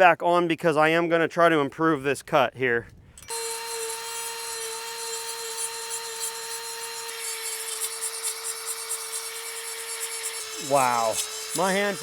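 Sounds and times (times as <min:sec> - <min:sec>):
grinder sharpening chain: 0:03.2 - 0:12.0.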